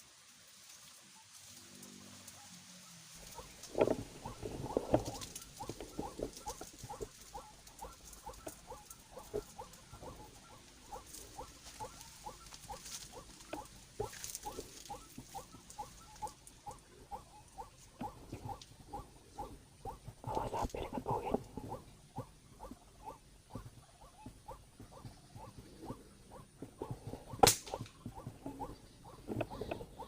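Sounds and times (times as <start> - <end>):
waterhen croaking calls: 3.2 - 30.0.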